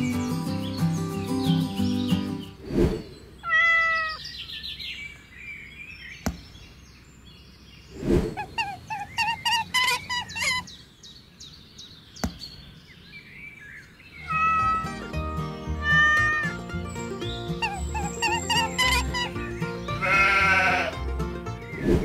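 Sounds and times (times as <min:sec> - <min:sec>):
cat meow: 0:03.4 - 0:04.2, 0:14.2 - 0:15.0, 0:15.8 - 0:16.6
figurines thudding down: 0:06.2 - 0:06.6, 0:12.2 - 0:12.6.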